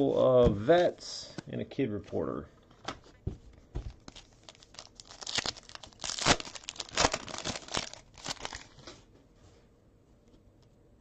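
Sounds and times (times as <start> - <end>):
foil wrapper tearing and crinkling: 4.0 - 8.8.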